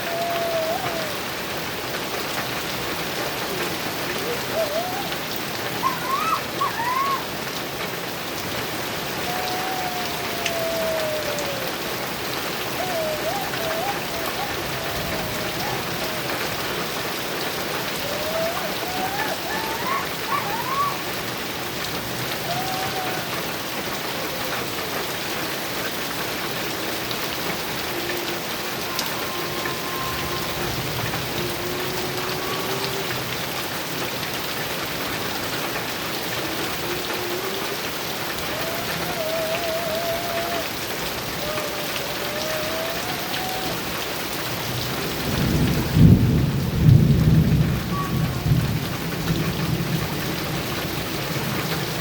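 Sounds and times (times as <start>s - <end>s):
heavy rain on a metal roof: 0.0s - 52.0s
thunder rumbling: 44.6s - 51.6s.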